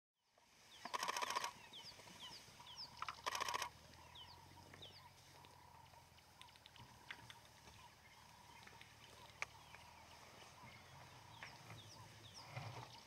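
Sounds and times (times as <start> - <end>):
high falling bird chirps: 0.7 - 6.6
harsh bird calls: 0.7 - 13.0.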